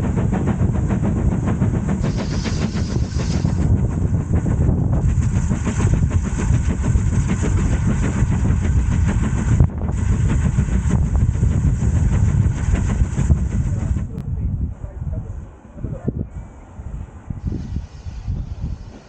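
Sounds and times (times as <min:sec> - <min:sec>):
train rumbling with hiss: 0:00.0 - 0:19.0.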